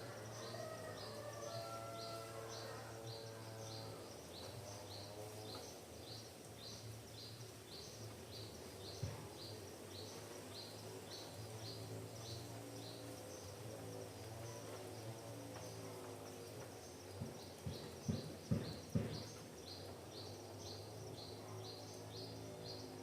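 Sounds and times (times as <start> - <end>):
sharp knock: 17.7 - 19.4.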